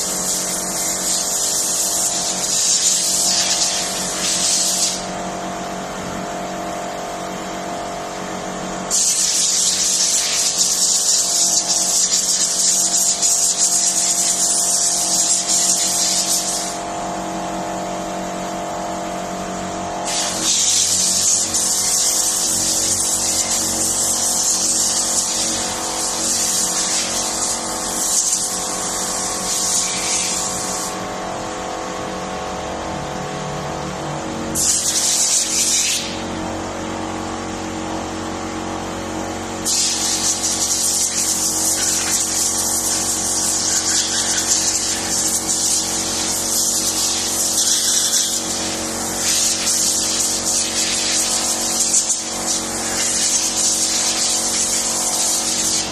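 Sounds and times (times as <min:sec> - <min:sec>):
high-pressure jet hissing: 0:00.0 - 0:05.2, 0:08.9 - 0:16.9, 0:20.0 - 0:31.0, 0:34.6 - 0:36.3, 0:39.6 - 0:55.9
cleaning machine motor running: 0:00.0 - 0:55.9.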